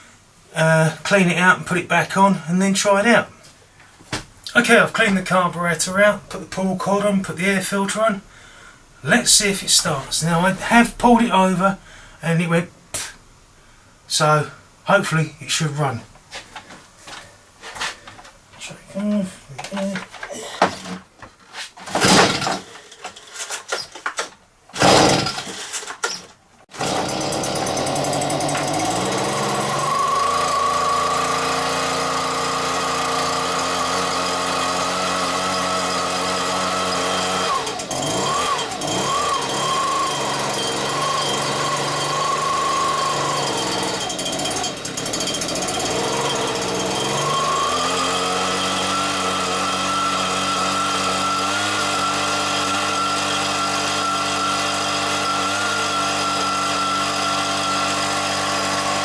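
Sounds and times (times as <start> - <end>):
recoil cord pulls: 21.9 - 59.0
leaf blower engine running: 24.8 - 25.6, 26.7 - 59.0.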